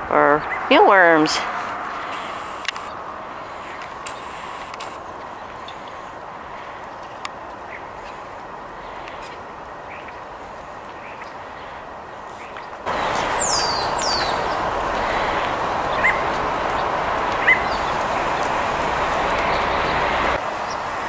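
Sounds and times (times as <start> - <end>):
outdoor background hiss: 0.0 - 21.0
bird chirps: 12.4 - 18.5.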